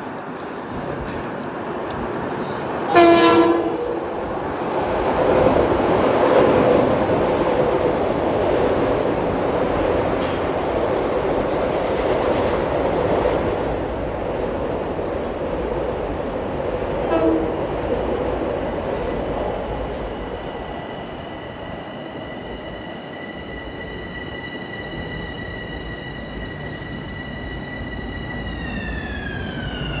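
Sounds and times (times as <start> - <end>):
train wheels rumbling on rails: 0.0 - 30.0
steady high whine: 18.7 - 30.0.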